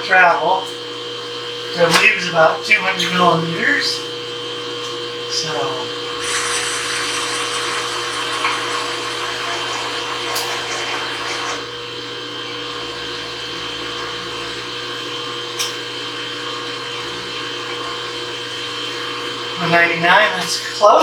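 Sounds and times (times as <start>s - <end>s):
steady electrical hum: 1.6s - 21.0s
motor whirring: 6.2s - 11.7s.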